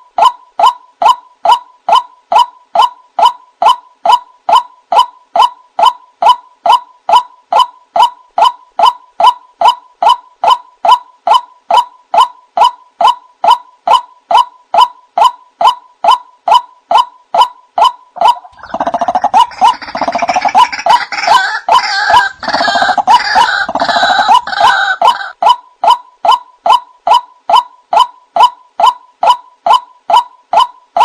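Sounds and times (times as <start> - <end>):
waterhen monotonous call: 17.8 - 25.6
harsh gurgling bird chorus: 18.5 - 21.0.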